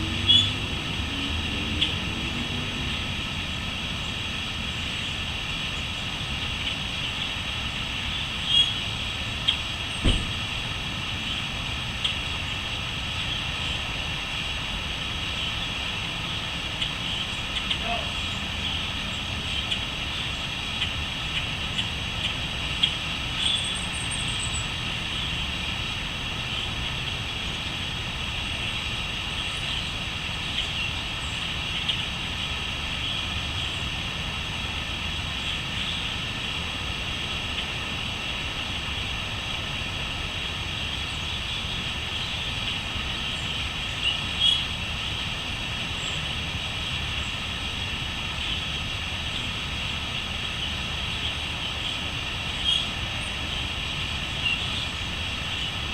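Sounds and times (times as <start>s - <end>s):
bird calls: 16.7s - 19.9s, 20.8s - 25.3s, 43.2s - 44.8s, 52.5s - 53.4s
crickets chirring: 50.5s - 55.9s.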